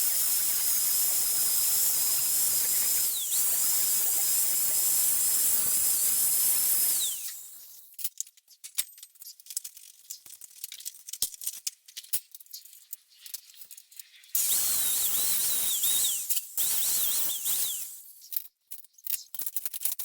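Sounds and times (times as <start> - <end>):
grinder whining on steel: 0.0 - 7.9, 14.4 - 18.1.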